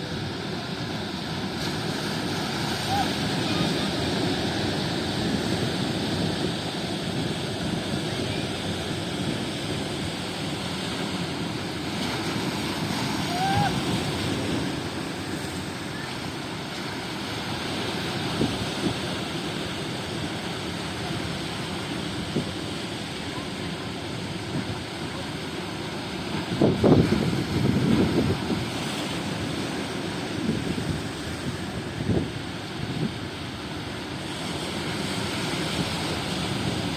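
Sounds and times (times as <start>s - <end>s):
wind buffeting microphone: 0.0s - 15.8s, 26.2s - 36.9s
surf washing: 0.0s - 36.9s.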